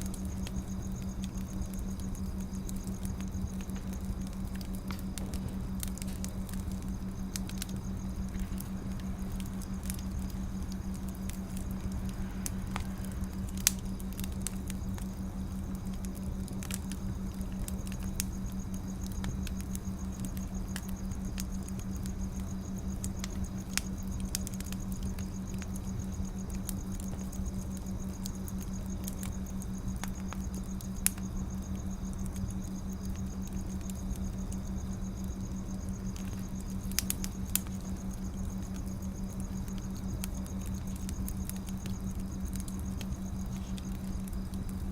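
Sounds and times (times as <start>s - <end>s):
constant low hum: 0.0s - 44.9s
wood fire crackling: 0.0s - 44.9s.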